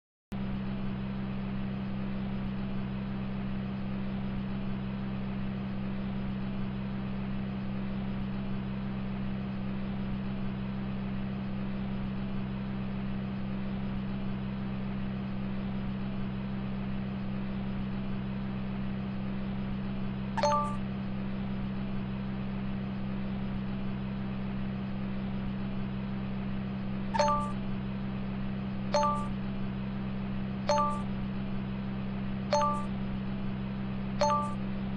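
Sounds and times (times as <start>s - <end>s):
short electronic dings: 20.4s - 20.8s, 27.2s - 27.6s, 29.0s - 29.3s, 30.7s - 31.1s, 32.5s - 32.9s, 34.2s - 34.6s.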